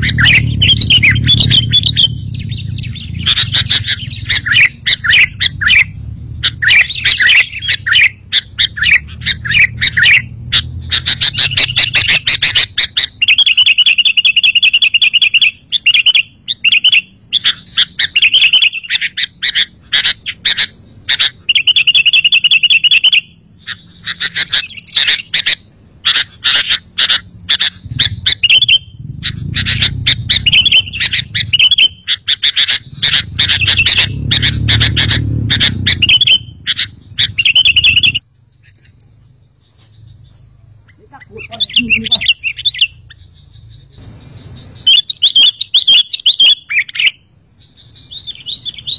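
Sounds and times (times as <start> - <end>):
low rumble: 0.0 - 12.3, 27.7 - 32.1, 32.7 - 44.9
birds chirping and warbling: 0.0 - 48.9.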